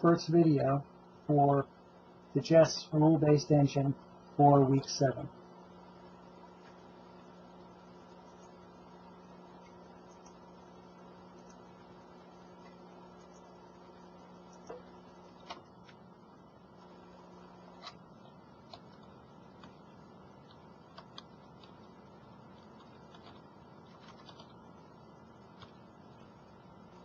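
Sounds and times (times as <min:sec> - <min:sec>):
low electrical hum: 0:00.0 - 0:27.0
computer mouse clicking: 0:20.4 - 0:21.8.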